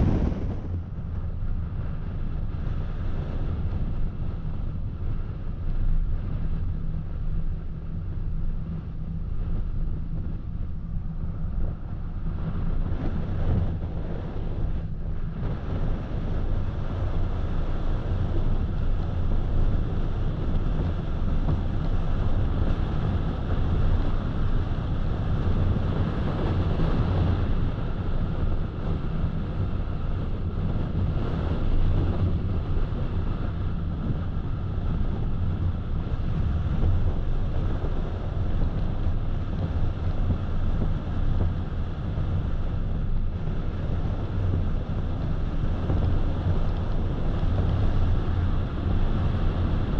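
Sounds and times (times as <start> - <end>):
wind rushing past: 0.0 - 1.4.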